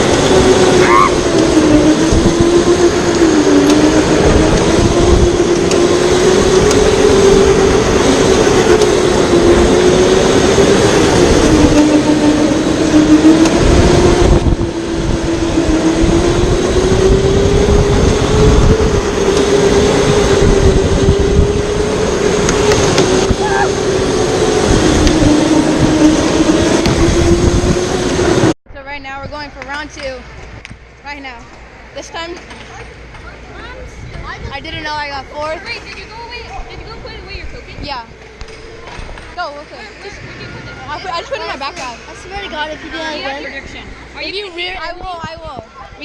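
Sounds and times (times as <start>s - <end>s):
electric go-kart motor whining: 0.0s - 28.6s
wind and track noise: 0.0s - 46.0s.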